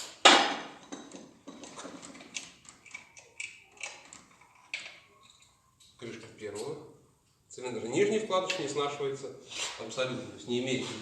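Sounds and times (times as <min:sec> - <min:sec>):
metal clicking and clinking: 0:00.8 - 0:05.6.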